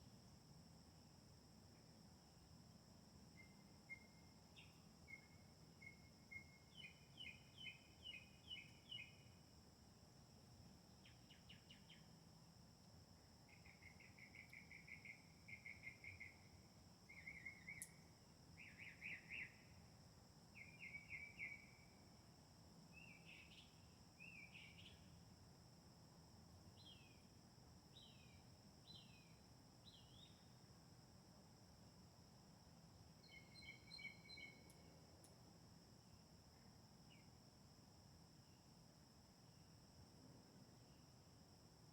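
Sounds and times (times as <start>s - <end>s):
songbird singing: 3.4s - 9.4s, 10.9s - 12.2s, 13.5s - 19.8s, 20.6s - 22.0s, 23.0s - 25.2s, 26.8s - 27.3s, 27.9s - 30.6s, 33.2s - 35.0s.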